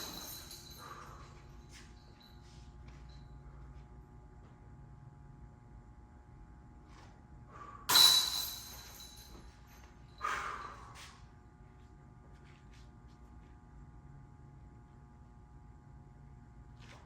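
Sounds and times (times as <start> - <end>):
disc hitting metal chains: 0.0 - 1.0, 7.9 - 9.4
low steady hum: 0.0 - 17.0.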